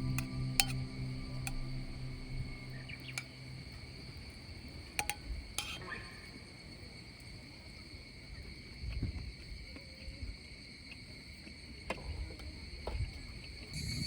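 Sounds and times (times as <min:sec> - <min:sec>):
soft low thumps: 0:00.0 - 0:03.5
insect chorus trilling: 0:00.0 - 0:07.3, 0:12.7 - 0:14.0.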